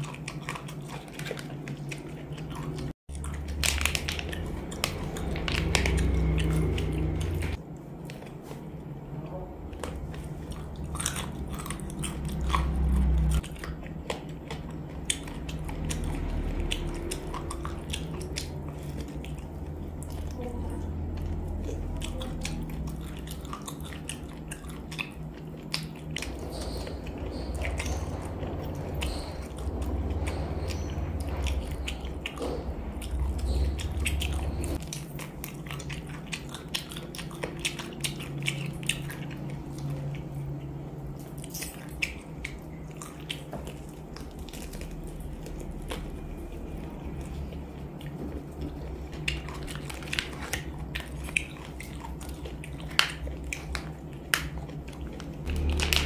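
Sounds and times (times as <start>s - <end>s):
biting and chewing crunches: 0.0s - 8.9s, 9.7s - 56.0s
low rumble: 8.7s - 34.8s, 55.3s - 56.0s.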